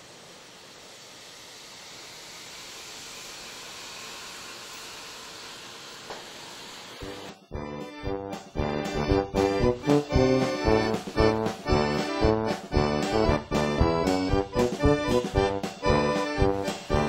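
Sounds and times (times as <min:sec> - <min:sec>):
steady hiss: 0:00.0 - 0:07.1
music: 0:07.0 - 0:17.0.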